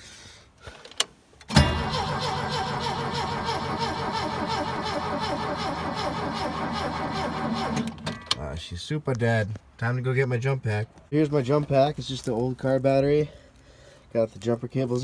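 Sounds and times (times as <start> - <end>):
starter cranking engine: 1.5 - 8.0
engine starting: 1.5 - 8.2.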